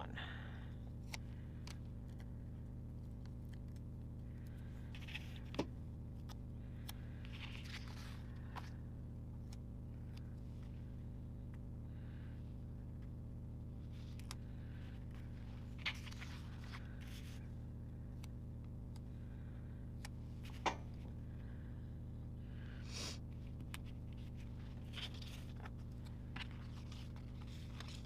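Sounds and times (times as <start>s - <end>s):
low hum: 0.0s - 28.0s
paper rustling and clicks: 15.8s - 17.4s, 23.6s - 28.0s.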